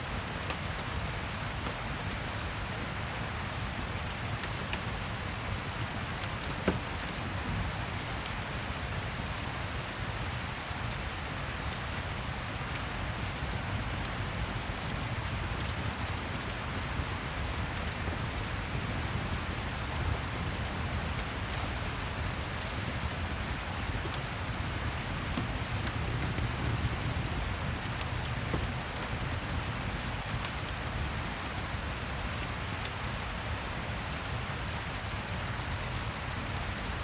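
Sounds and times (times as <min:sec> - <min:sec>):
rain hiss and rumble: 0:00.0 - 0:37.0
fireplace crackles: 0:20.6 - 0:29.6.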